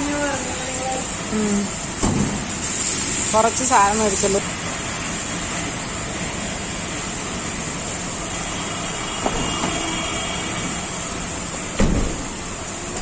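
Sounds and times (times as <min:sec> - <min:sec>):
road noise inside vehicle: 0:00.0 - 0:13.0
thump: 0:02.0 - 0:02.4, 0:11.8 - 0:12.2.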